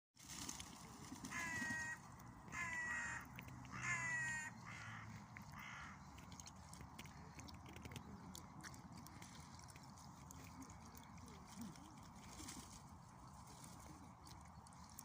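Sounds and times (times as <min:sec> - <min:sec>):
crow cawing: 0:01.3 - 0:06.0.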